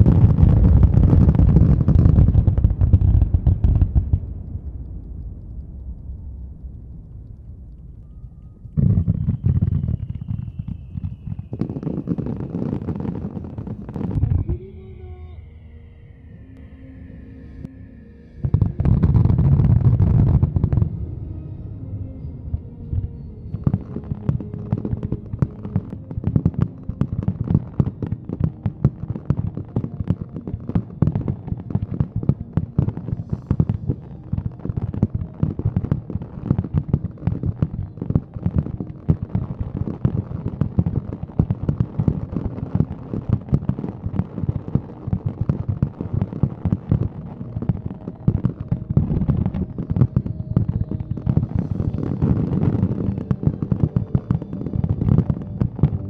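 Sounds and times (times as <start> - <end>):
fireworks booming and crackling: 0.0 - 15.2, 18.4 - 56.0.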